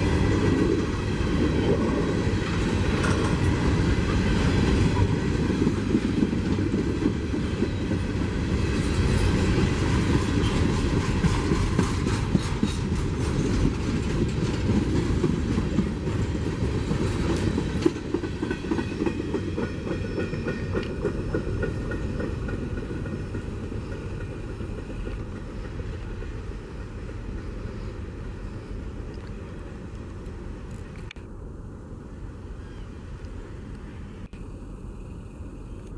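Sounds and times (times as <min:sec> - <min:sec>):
freight train wheels clacking: 0:00.0 - 0:31.2.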